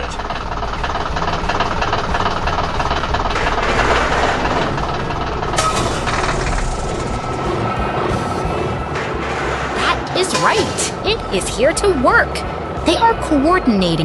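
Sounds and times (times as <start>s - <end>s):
sharp burst of machine noise: 0.0s - 11.1s
heavy construction machines running: 0.0s - 14.0s.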